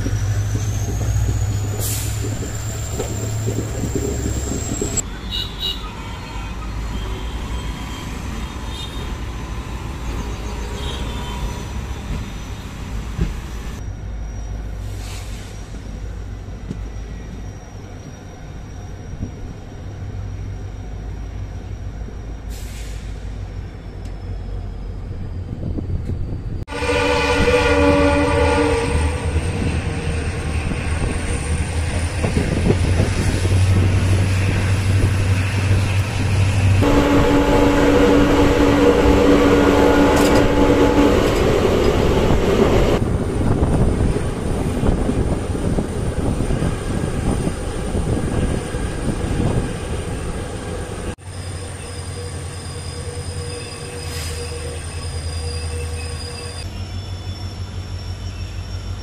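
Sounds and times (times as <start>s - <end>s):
train wheels rumbling on rail: 0.0s - 59.0s
train horn: 26.7s - 29.4s, 36.8s - 42.3s
wind rush: 29.4s - 51.2s.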